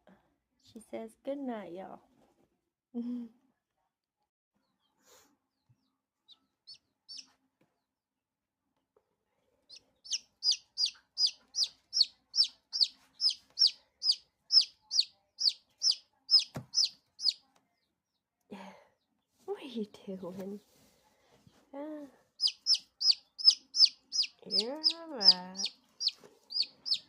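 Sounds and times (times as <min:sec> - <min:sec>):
chick peeping: 0:06.3 - 0:07.3, 0:09.7 - 0:17.4, 0:22.4 - 0:27.0.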